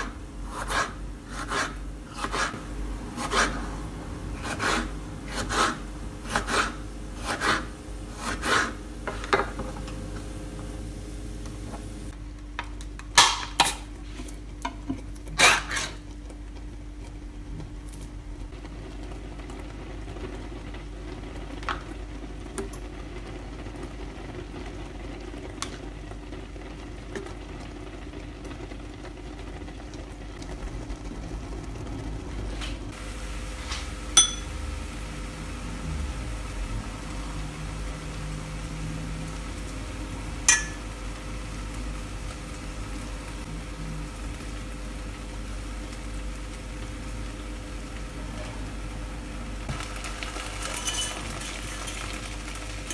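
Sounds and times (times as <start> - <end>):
sharp knocks or clinks: 34.2 - 34.5.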